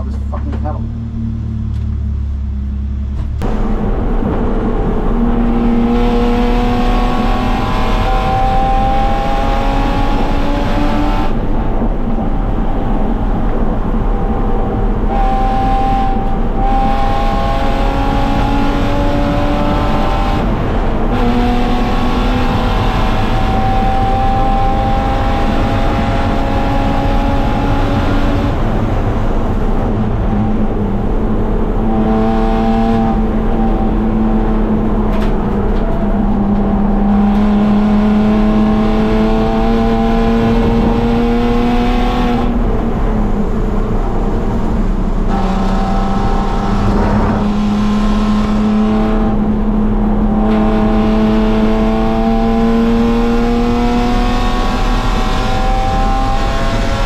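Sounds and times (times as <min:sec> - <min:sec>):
race car engine accelerating: 0:03.0 - 0:57.0.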